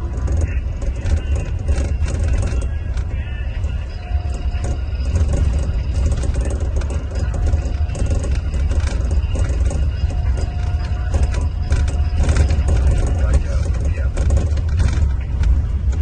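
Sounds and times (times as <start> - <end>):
coach engine droning: 0.0 - 16.0
light rattling clatter: 0.0 - 16.0.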